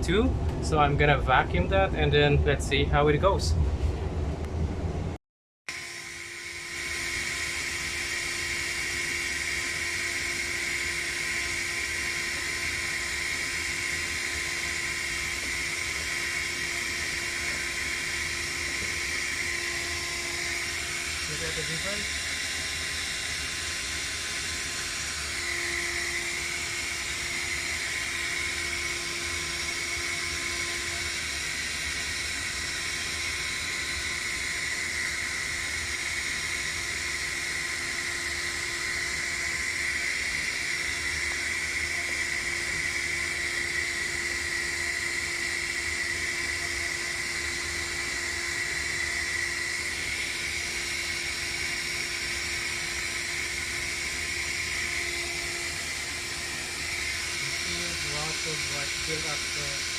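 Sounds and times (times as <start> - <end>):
vacuum cleaner running: 5.7 - 59.9.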